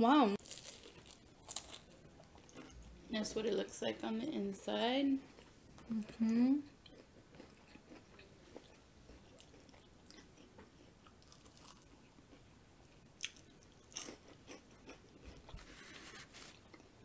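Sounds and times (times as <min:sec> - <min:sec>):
close-up chewing: 0:06.8 - 0:15.6.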